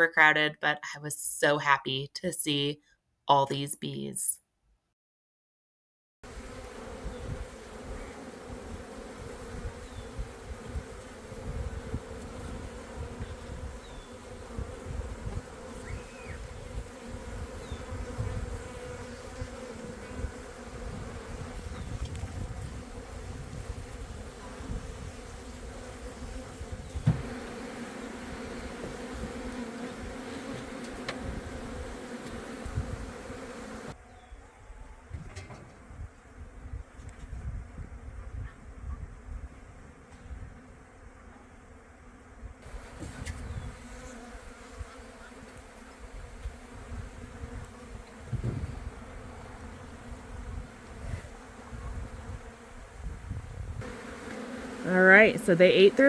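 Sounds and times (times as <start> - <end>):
honeybees buzzing: 6.3 - 34.3, 40.2 - 56.0.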